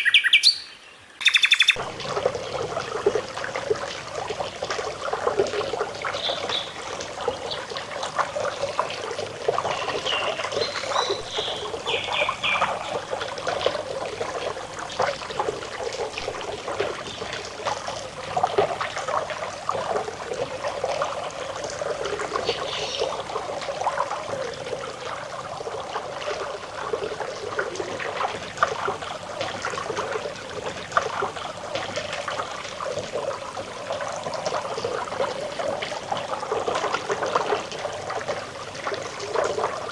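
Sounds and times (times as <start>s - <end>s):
high bird chirps: 0.0s - 1.8s
stream babbling over stones: 1.2s - 39.9s.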